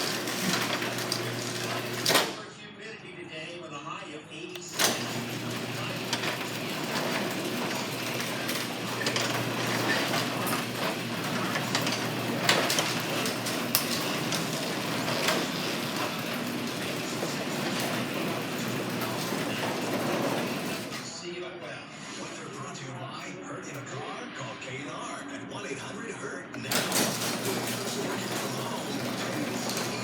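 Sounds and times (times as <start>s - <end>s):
garage door opener rattling: 0.0s - 2.4s, 4.6s - 21.2s, 26.6s - 30.0s.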